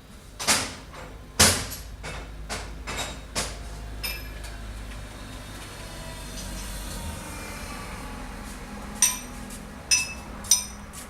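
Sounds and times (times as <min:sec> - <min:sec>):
ringing metal clink: 0:04.0 - 0:04.4, 0:09.0 - 0:09.3, 0:09.9 - 0:10.8
metal tools clanking on metal: 0:04.0 - 0:04.5, 0:09.0 - 0:10.8.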